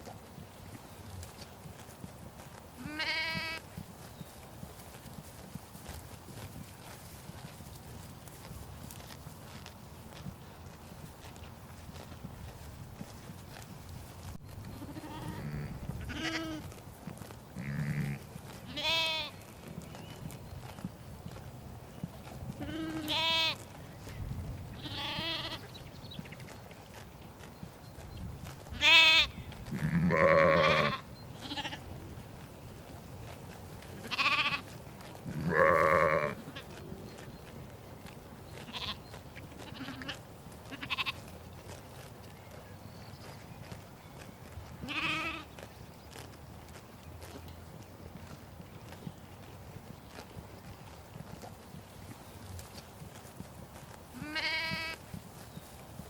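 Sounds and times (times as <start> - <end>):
sheep bleating: 2.8 - 3.6, 14.7 - 16.7, 17.6 - 19.4, 22.6 - 23.6, 24.8 - 25.7, 28.7 - 31.8, 34.0 - 34.7, 35.3 - 36.7, 38.6 - 39.0, 39.6 - 41.3, 44.8 - 45.5, 54.1 - 55.0.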